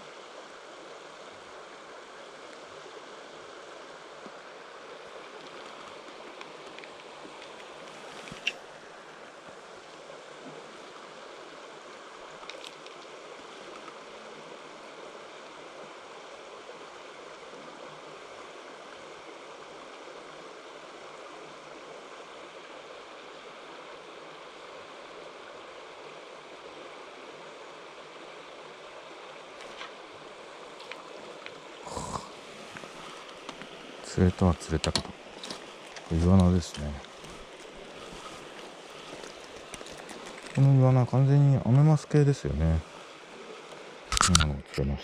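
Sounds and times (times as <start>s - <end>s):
stream water running: 0.0s - 45.0s
sharp click: 44.1s - 44.8s.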